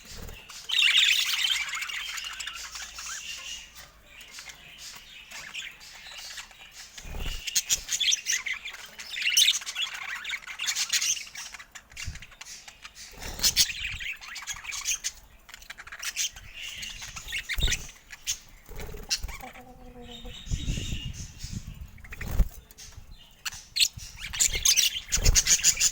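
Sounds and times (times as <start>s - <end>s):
wings fluttering: 0.0s - 3.2s, 6.4s - 8.8s, 13.0s - 25.9s
budgerigars chattering and chirping: 0.0s - 25.9s.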